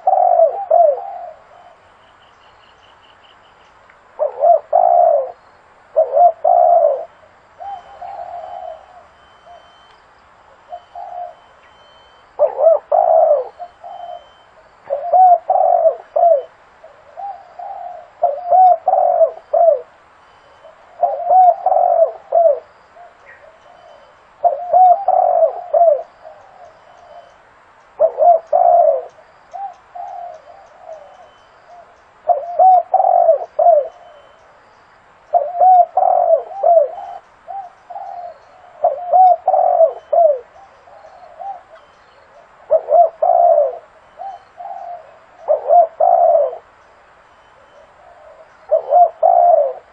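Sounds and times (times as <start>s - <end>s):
dove cooing: 0.0s - 1.9s, 4.1s - 9.9s, 10.5s - 27.4s, 28.0s - 34.6s, 35.3s - 46.8s, 47.5s - 49.9s.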